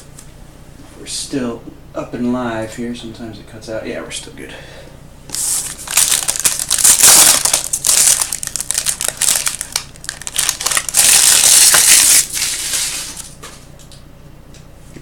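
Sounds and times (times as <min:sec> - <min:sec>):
wrapper tearing and crinkling: 0:05.3 - 0:13.3.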